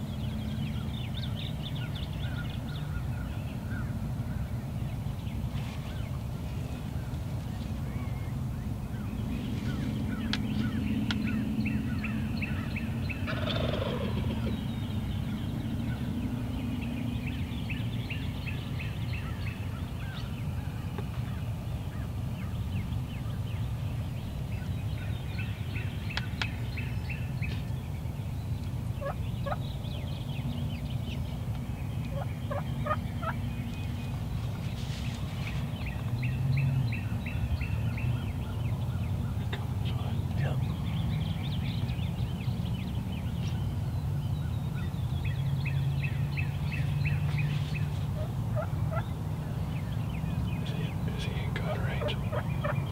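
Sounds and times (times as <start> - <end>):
low rumble: 3.6 - 19.2
turkey gobbling: 13.2 - 14.6, 29.0 - 29.6, 32.1 - 33.4, 48.2 - 49.0, 52.0 - 52.8.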